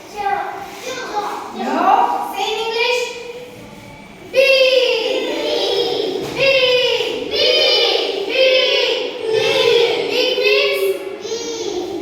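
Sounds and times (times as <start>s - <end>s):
children chanting together: 4.1s - 12.0s.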